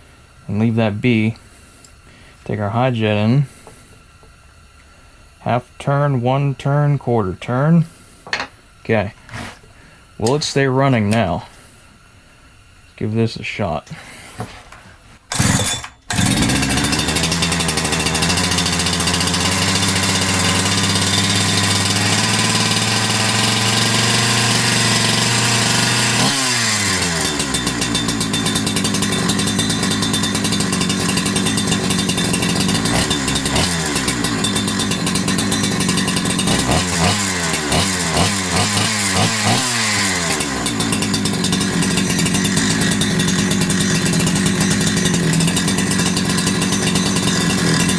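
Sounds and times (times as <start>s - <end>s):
chainsaw engine running: 15.3s - 47.9s
chainsaw starter pull: 15.3s - 47.9s.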